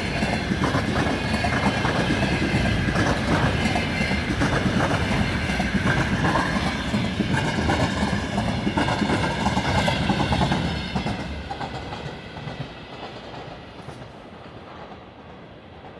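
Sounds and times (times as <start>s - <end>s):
freight train wagons rolling on rails: 0.0s - 15.9s.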